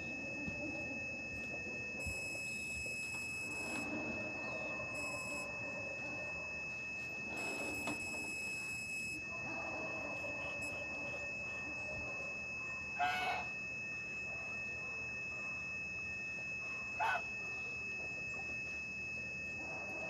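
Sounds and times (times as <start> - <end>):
high-pitched background tone: 0.0 - 20.0
chicken calls: 13.0 - 13.5, 17.0 - 17.3.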